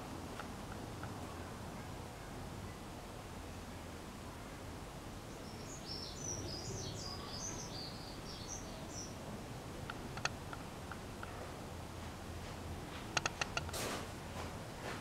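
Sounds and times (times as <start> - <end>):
small bird chirping: 5.3 - 9.2
faint clicks: 9.8 - 11.4, 13.0 - 13.8.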